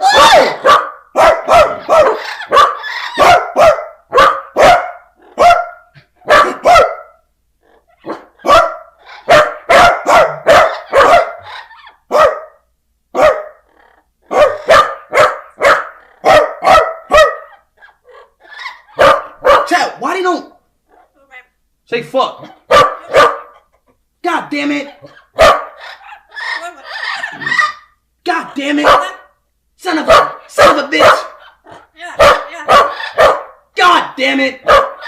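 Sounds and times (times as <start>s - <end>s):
dog barking rapidly: 0.0s - 7.3s, 8.0s - 13.6s, 14.3s - 17.7s, 18.6s - 20.0s, 22.4s - 23.6s, 25.0s - 28.0s, 28.8s - 29.4s, 30.0s - 33.7s, 34.6s - 35.0s.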